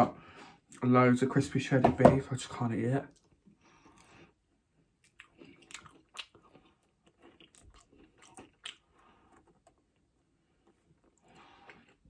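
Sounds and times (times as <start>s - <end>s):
chewing crispy food: 4.9s - 12.0s.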